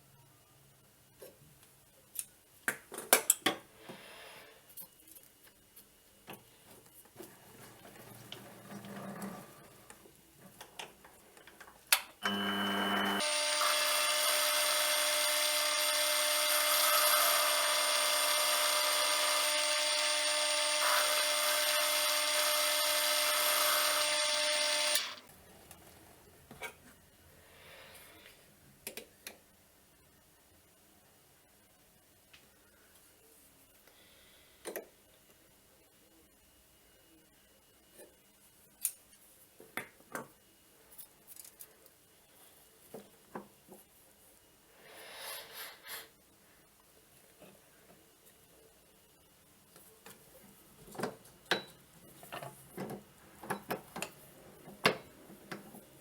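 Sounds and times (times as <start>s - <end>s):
lathe motor whining: 12.2s - 25.2s.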